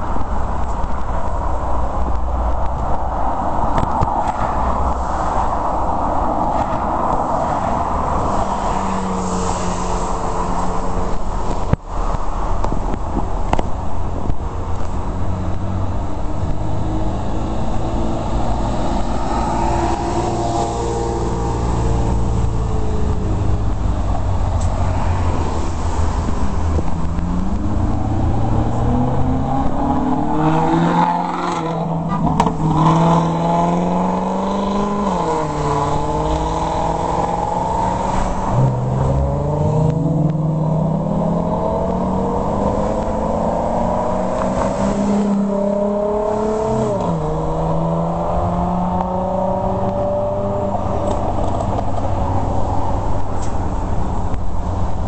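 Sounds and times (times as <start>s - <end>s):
rumble of other engines: 0.0s - 55.0s
car engine accelerating hard: 26.2s - 52.0s.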